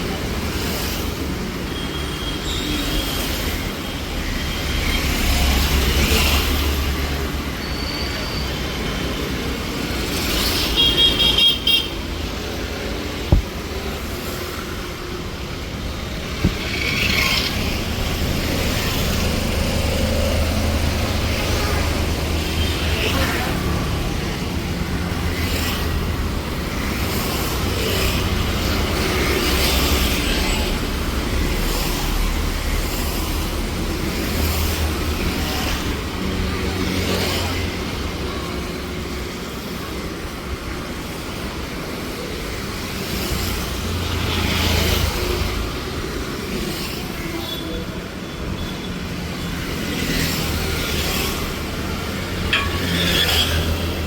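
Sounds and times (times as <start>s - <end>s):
passing cars rumbling: 12.2s - 39.9s, 49.0s - 54.0s.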